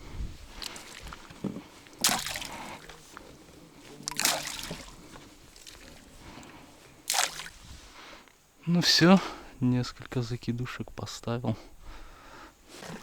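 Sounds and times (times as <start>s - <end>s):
water splashing at river's edge: 0.0s - 8.0s.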